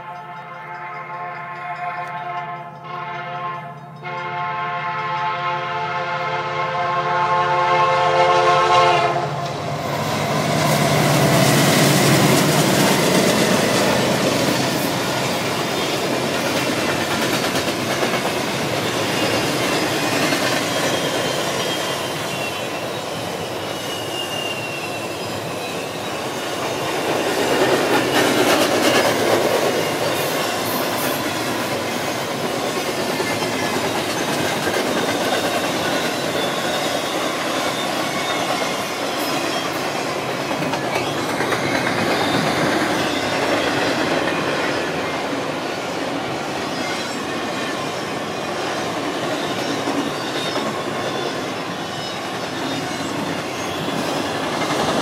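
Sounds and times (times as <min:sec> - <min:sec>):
locomotive air horn chord: 0:00.0 - 0:09.4
train wheels clickety-clack: 0:08.2 - 0:55.0
faint wheel squeal: 0:20.6 - 0:27.0.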